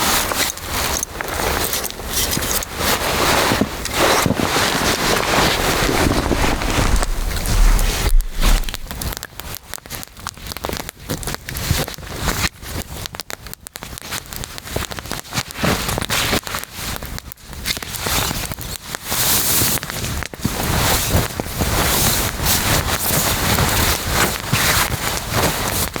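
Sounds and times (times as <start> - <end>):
campfire crackling and popping: 5.5 - 9.2.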